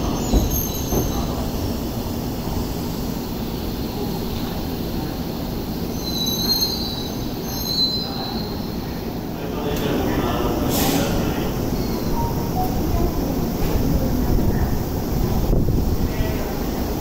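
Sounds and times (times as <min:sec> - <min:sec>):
train low rumble: 0:00.0 - 0:17.0.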